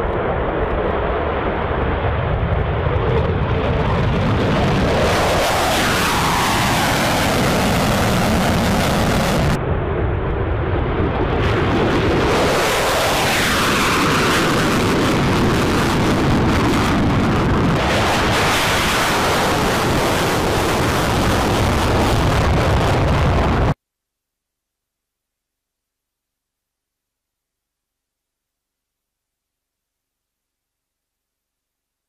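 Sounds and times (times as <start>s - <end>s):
fighter jet engines: 0.0s - 23.8s.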